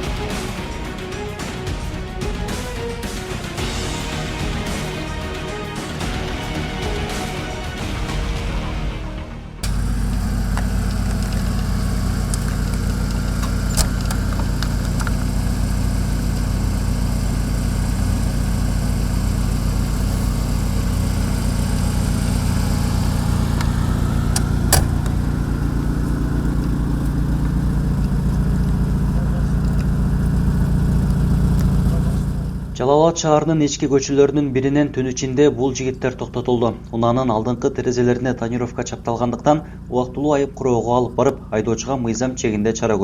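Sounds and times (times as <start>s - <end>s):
sharp clicks: 9.6s - 32.8s
car engine running: 9.6s - 43.0s.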